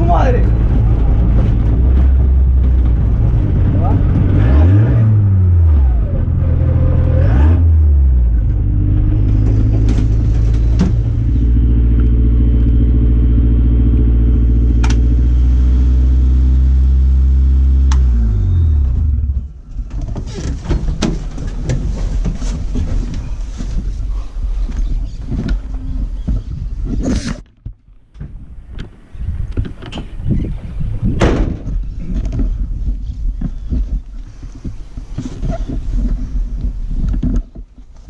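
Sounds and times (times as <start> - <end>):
rally car engine revving: 0.0 - 19.6.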